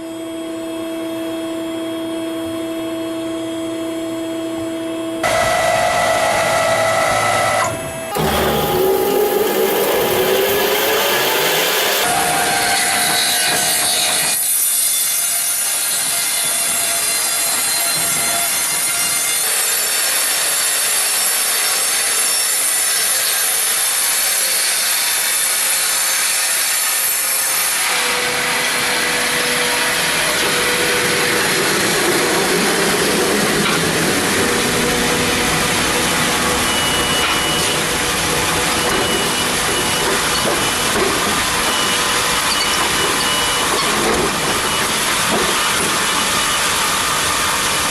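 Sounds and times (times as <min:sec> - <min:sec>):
deeper running noise: 0:05.2 - 0:12.7
bandsaw cutting log: 0:05.2 - 0:47.9.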